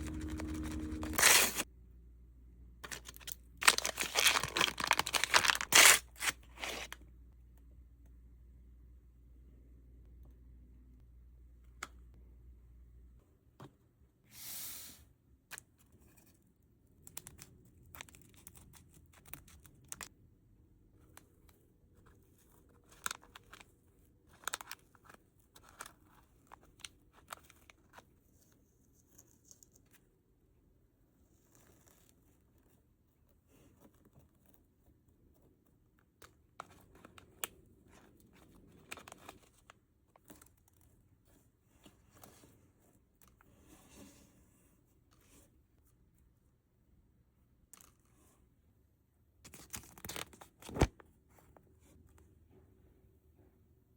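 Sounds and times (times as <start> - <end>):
plastic packaging tearing: 0.0 - 1.6, 2.8 - 6.9
plastic wrappers crinkling: 0.0 - 1.6, 2.8 - 6.9.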